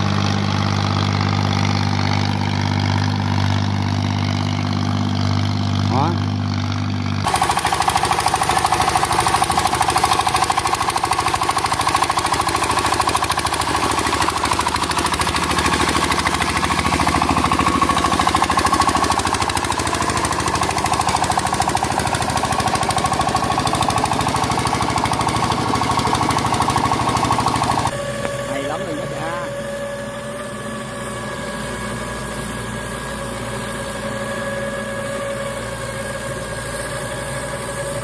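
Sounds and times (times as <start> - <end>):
diesel tiller engine knocking: 0.0 - 30.4.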